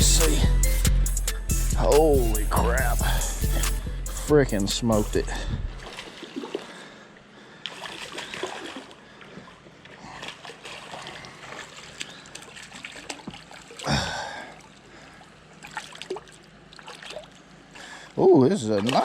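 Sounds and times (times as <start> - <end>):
creek water trickling: 5.8 - 19.0.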